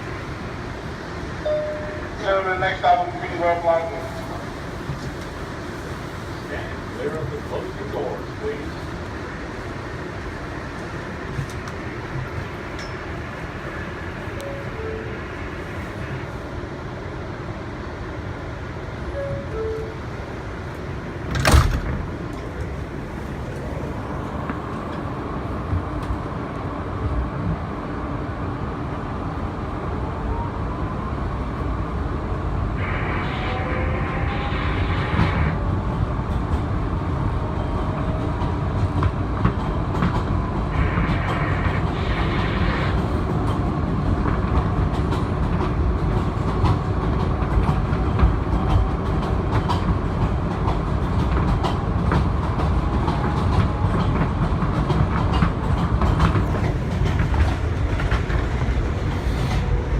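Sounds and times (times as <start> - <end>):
subway car running: 0.0 - 59.9
wheels clacking over rail joints: 43.3 - 59.9.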